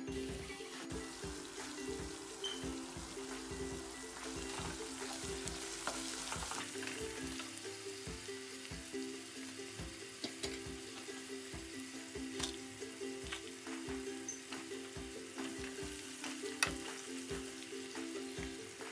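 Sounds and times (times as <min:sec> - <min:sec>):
background melody: 0:00.0 - 0:18.9
onions sizzling in oil: 0:00.0 - 0:18.9
wooden spoon stirring: 0:00.2 - 0:07.5.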